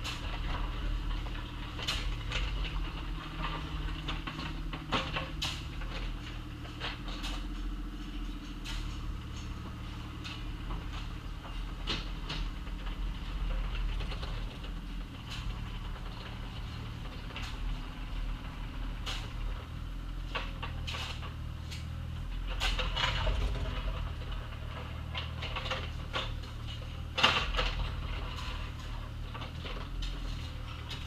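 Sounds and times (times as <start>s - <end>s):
excavator diesel engine: 0.0s - 31.0s.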